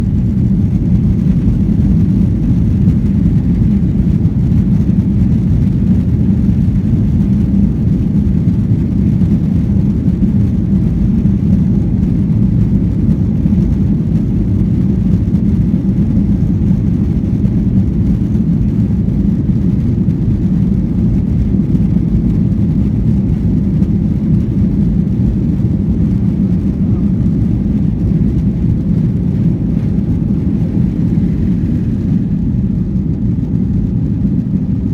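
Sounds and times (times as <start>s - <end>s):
aircraft engine rumble: 0.0s - 34.9s.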